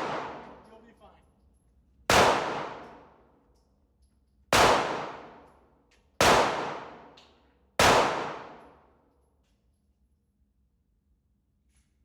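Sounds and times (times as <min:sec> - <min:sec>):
rifle gunshots: 0:00.0 - 0:00.6, 0:02.1 - 0:03.0, 0:04.6 - 0:05.4, 0:06.2 - 0:07.1, 0:07.8 - 0:08.6.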